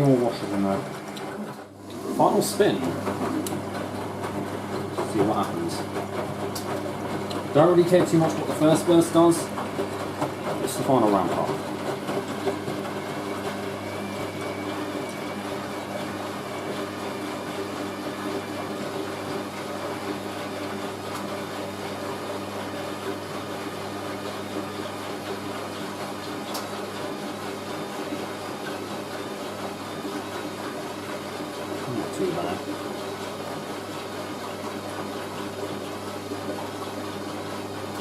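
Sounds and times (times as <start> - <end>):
washing machine spinning: 0.0 - 38.0.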